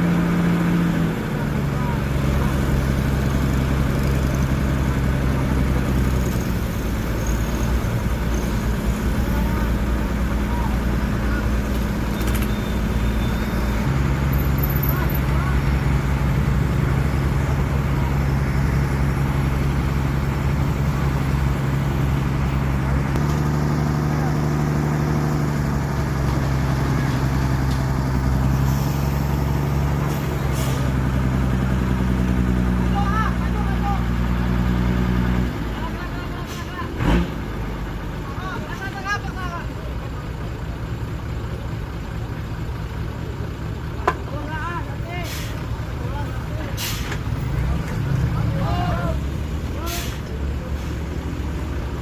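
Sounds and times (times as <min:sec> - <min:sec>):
truck diesel engine running: 0:00.0 - 0:52.0.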